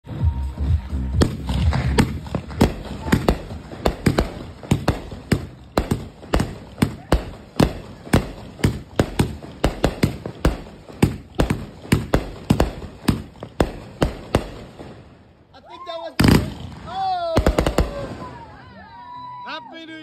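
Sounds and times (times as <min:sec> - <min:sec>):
roman candles firing sharp bangs: 0:01.2 - 0:15.4, 0:16.2 - 0:18.4.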